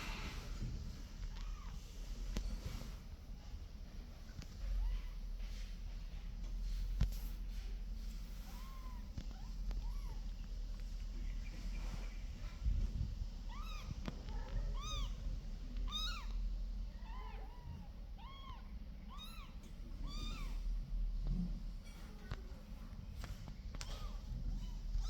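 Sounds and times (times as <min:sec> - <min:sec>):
kittens meowing: 0:01.2 - 0:01.8, 0:08.6 - 0:10.4, 0:13.5 - 0:20.7.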